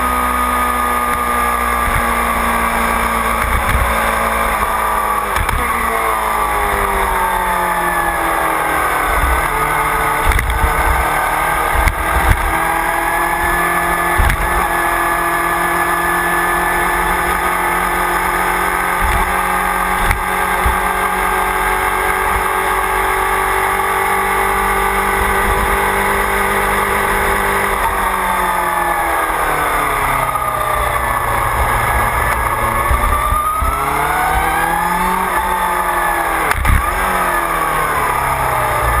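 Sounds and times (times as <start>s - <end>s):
motorcycle engine: 0.0s - 39.0s
wind rumbling on microphone: 6.7s - 15.8s, 26.8s - 35.7s.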